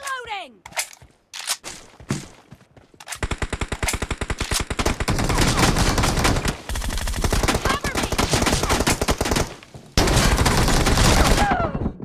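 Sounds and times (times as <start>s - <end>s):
video game automatic gunfire: 3.2s - 11.4s.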